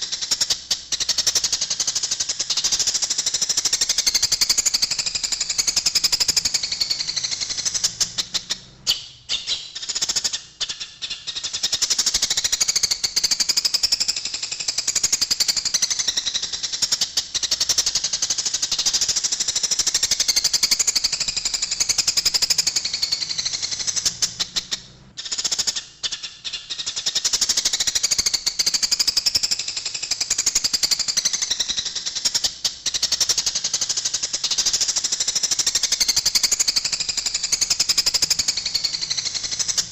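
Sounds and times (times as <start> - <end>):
sparrows chirping: 0.0 - 14.0, 14.7 - 29.5, 30.2 - 39.9.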